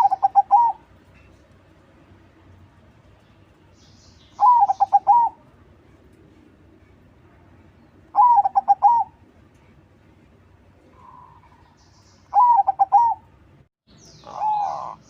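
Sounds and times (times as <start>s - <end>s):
dove cooing: 0.0s - 0.9s, 4.4s - 5.4s, 8.1s - 9.2s, 12.3s - 13.3s, 14.2s - 15.0s.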